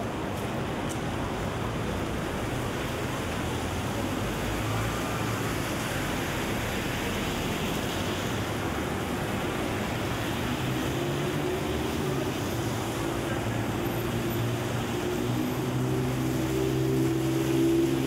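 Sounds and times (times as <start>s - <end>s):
rain falling on street: 0.0s - 18.0s.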